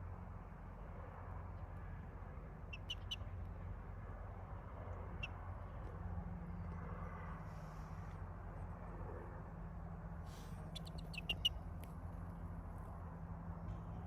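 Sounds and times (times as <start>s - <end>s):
chicken chirping: 10.7s - 11.6s.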